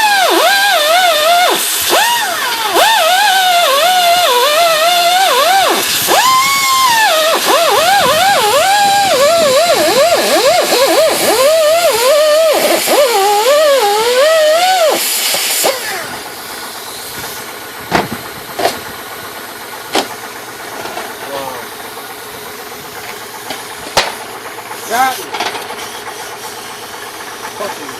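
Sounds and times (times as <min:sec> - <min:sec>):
electric power tool running: 0:00.0 - 0:27.8
sharp knocks: 0:17.9 - 0:18.9, 0:19.9 - 0:20.2, 0:23.5 - 0:24.2.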